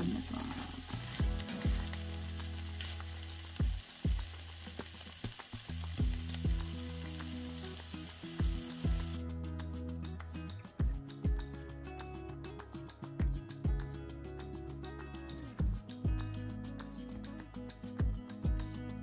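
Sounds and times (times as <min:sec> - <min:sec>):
food sizzling in a skillet: 0:00.0 - 0:09.2
background music with deep beat: 0:05.9 - 0:07.3, 0:08.4 - 0:19.0.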